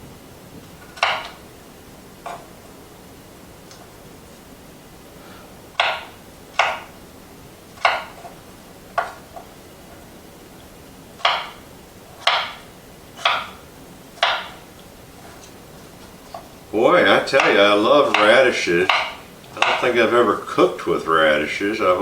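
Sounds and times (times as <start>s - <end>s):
knife chopping on cutting board: 5.8s - 6.9s, 7.8s - 8.4s, 12.2s - 13.6s, 14.2s - 14.6s, 17.3s - 19.9s.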